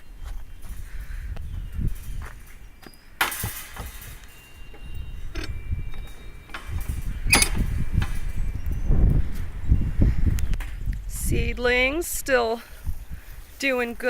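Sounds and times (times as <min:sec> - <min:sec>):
metallic clicks: 0:05.3 - 0:05.6, 0:07.3 - 0:08.2.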